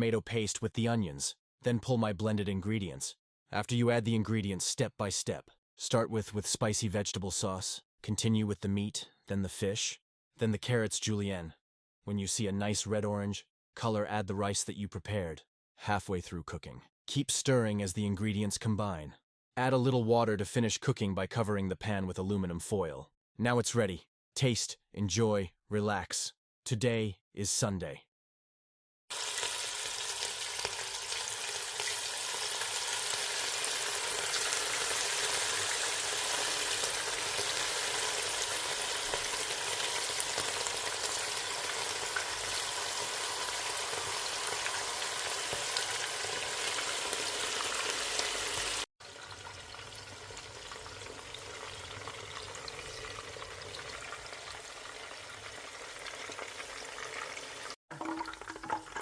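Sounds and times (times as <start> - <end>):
food sizzling in a pan: 29.1 - 58.8.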